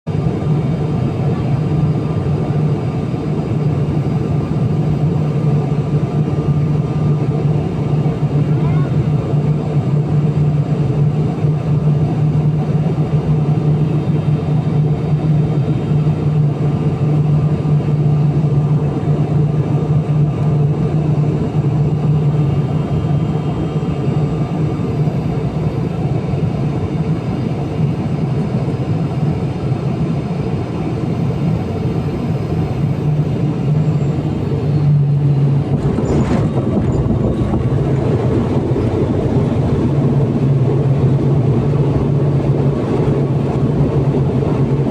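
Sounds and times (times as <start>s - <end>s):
turboprop cabin drone: 0.1s - 44.9s
wheels rumbling on runway: 0.1s - 44.9s.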